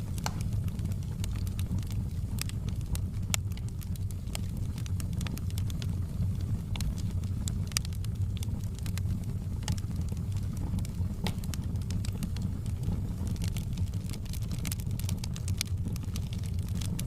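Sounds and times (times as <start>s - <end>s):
low fire rumble: 0.0s - 17.0s
wood fire crackling: 0.0s - 17.0s.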